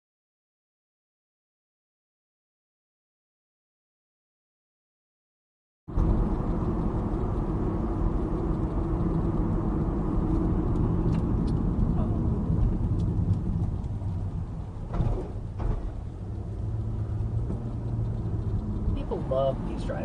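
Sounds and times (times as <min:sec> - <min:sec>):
car road and engine rumble: 0:05.9 - 0:20.0.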